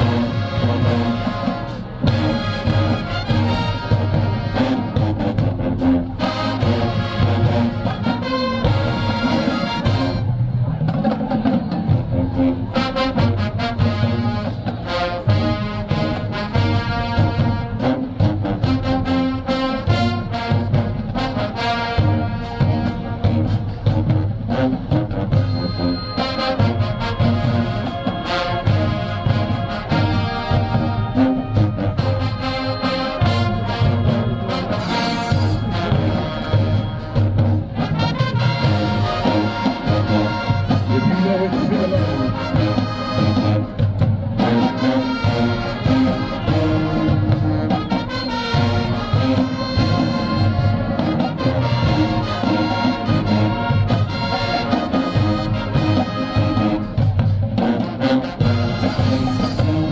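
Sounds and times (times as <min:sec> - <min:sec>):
marching band playing: 0:00.0 - 0:59.9.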